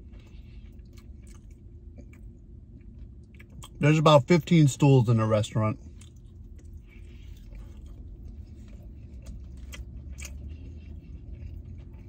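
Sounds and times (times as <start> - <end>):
person chewing food: 0.0 - 3.8, 5.8 - 12.0
steady low hum: 0.0 - 12.0.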